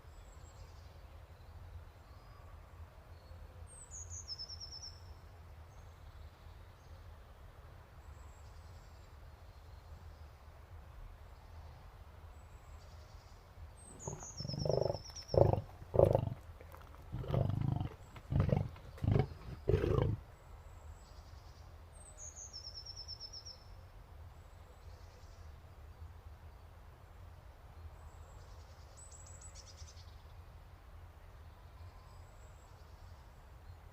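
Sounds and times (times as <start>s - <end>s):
lion roaring: 13.9s - 20.2s.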